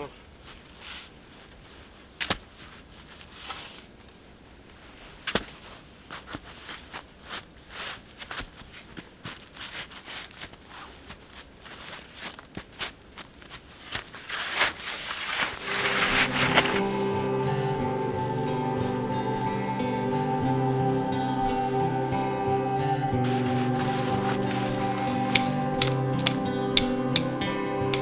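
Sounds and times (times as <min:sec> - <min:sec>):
footsteps crunching in snow: 0:00.3 - 0:22.0, 0:23.2 - 0:26.4
music: 0:15.6 - 0:28.0.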